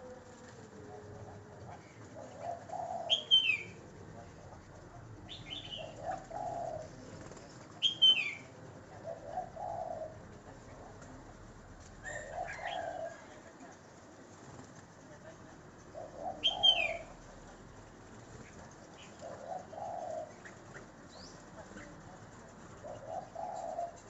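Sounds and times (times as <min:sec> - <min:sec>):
dove cooing: 0:00.0 - 0:13.8, 0:15.7 - 0:24.0
small bird chirping: 0:01.7 - 0:11.1, 0:15.8 - 0:17.5, 0:18.3 - 0:24.0.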